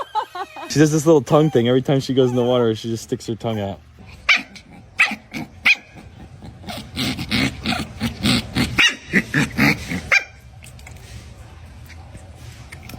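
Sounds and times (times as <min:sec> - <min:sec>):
dog barking: 0:04.3 - 0:06.0, 0:08.8 - 0:09.4, 0:10.1 - 0:10.4.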